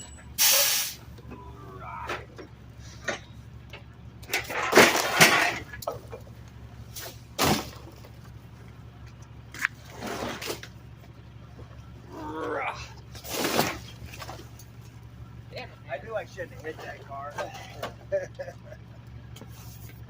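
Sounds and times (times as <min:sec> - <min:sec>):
truck engine hum: 0:00.0 - 0:20.0
trash crashing into truck hopper: 0:04.2 - 0:06.2, 0:06.9 - 0:08.2, 0:09.8 - 0:10.8, 0:13.1 - 0:14.6.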